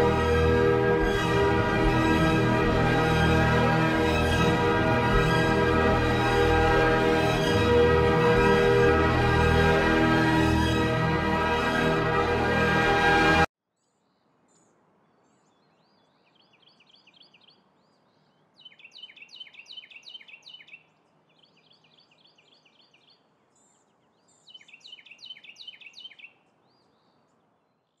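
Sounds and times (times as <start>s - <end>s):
songbird singing: 13.8s - 28.0s.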